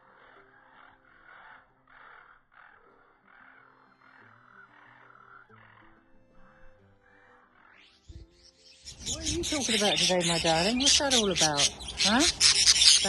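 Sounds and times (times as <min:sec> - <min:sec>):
budgerigars chattering and warbling: 0:06.5 - 0:13.0.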